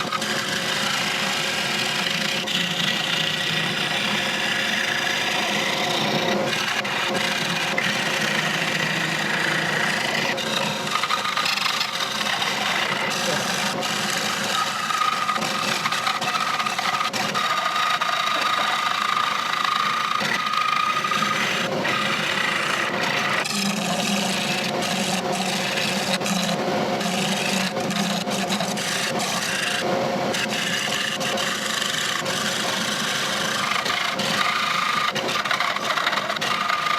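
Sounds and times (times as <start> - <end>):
tool scraping spinning wood: 0.0 - 36.9.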